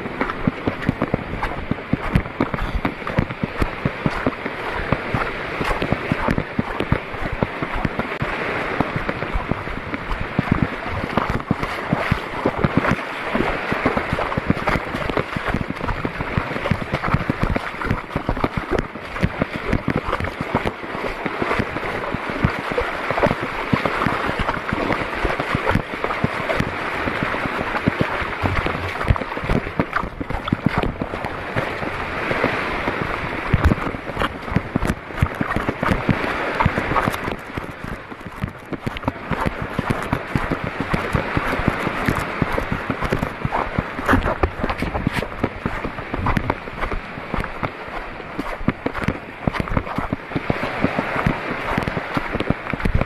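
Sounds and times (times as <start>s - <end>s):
water splashing and sloshing: 0.0s - 53.0s.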